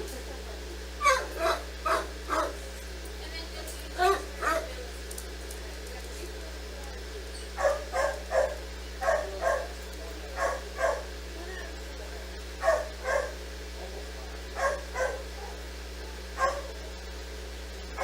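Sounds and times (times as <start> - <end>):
dog barking: 1.0 - 2.6, 4.0 - 4.7, 7.5 - 11.2, 12.6 - 13.4, 14.5 - 16.9.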